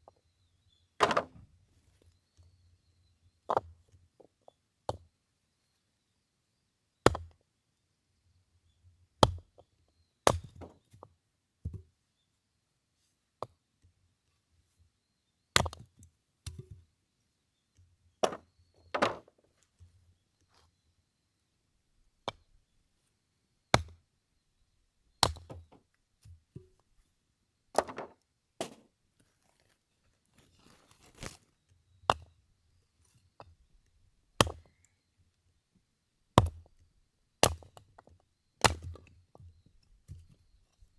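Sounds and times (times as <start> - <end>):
axe chopping firewood: 1.0 - 1.4, 7.1 - 7.3, 9.2 - 9.6, 10.3 - 10.8, 18.2 - 18.4, 23.7 - 24.0, 25.2 - 25.7, 34.4 - 34.8, 36.4 - 36.7, 37.4 - 37.8, 38.6 - 39.0.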